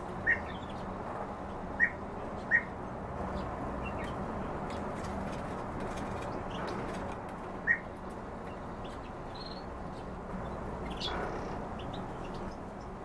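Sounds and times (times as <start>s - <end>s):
cage birds chirping: 0.0s - 13.0s
steady background noise: 0.0s - 13.0s.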